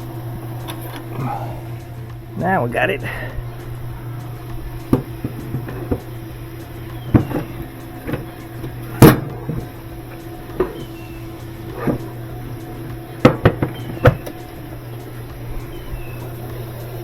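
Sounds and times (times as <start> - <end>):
steady low hum: 0.0 - 17.0
knocks of tools being handled: 11.6 - 14.7.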